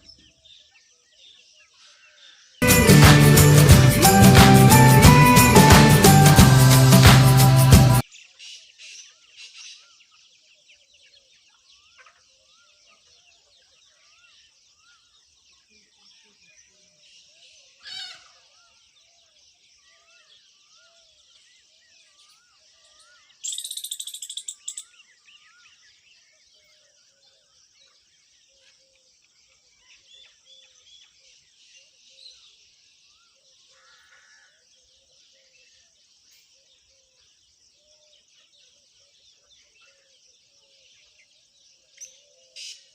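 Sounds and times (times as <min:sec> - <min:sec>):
high hiss-like chorus: 0:02.6 - 0:08.0
animal chirps: 0:23.4 - 0:24.9.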